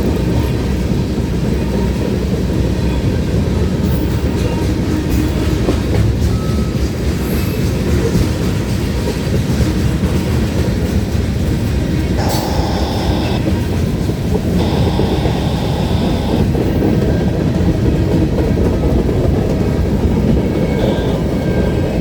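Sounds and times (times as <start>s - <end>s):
freight train wheels rumbling: 0.0s - 22.0s
brief high-pitched sound: 12.2s - 13.5s.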